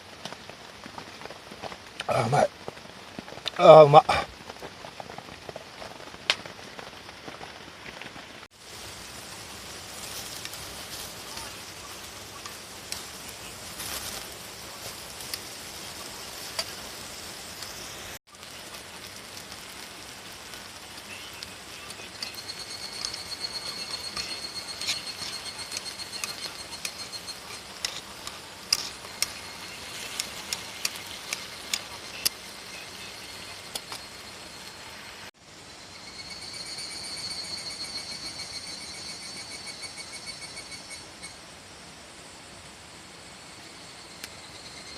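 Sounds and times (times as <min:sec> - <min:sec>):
rain falling: 0:00.0 - 0:35.6
high-pitched insect call: 0:08.6 - 0:18.7, 0:20.6 - 0:44.9.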